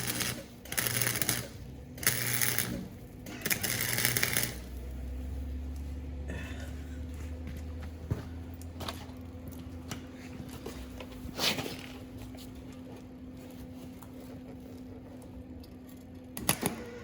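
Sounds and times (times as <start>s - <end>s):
welding setup electrical hum: 0.0s - 17.0s.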